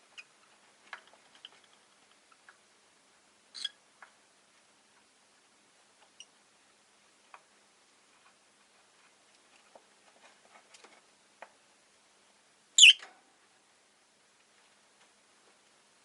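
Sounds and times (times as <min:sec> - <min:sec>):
faint ticks and scratches: 0:00.0 - 0:02.7, 0:03.6 - 0:11.8
shrill bird chirp: 0:12.8 - 0:13.0.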